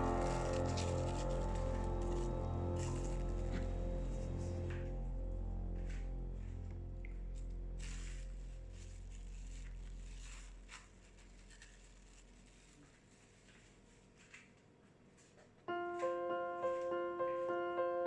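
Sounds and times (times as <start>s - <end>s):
piano melody: 0.0s - 10.5s, 15.7s - 18.0s
low hum: 0.0s - 12.8s.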